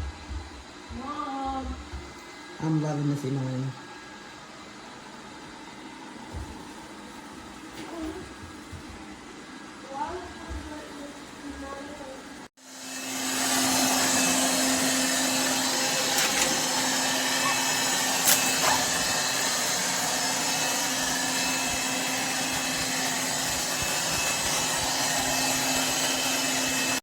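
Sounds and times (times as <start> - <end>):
robot vacuum motor running: 12.8 - 27.0.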